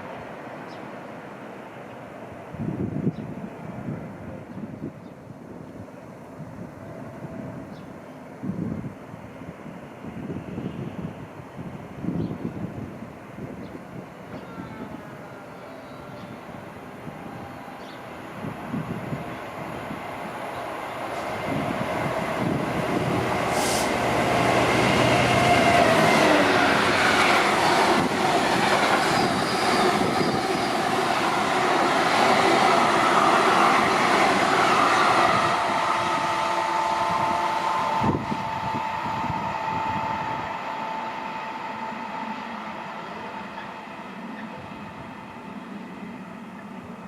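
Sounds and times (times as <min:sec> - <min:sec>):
train rumbling: 0:00.0 - 0:47.0
steady whining tone: 0:14.3 - 0:47.0.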